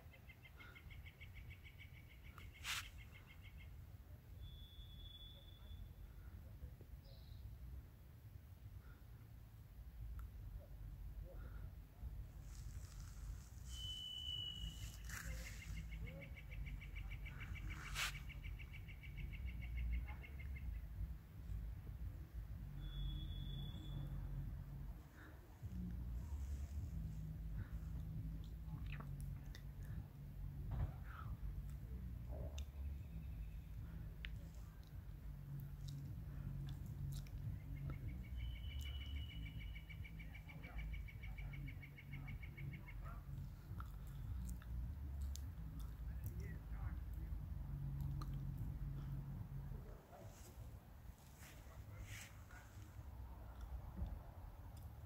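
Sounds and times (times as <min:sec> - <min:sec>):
songbird whistling and trilling: 0:04.4 - 0:05.9, 0:13.6 - 0:19.4, 0:22.8 - 0:24.2, 0:37.8 - 0:43.0
steady low rumble: 0:14.5 - 0:55.0.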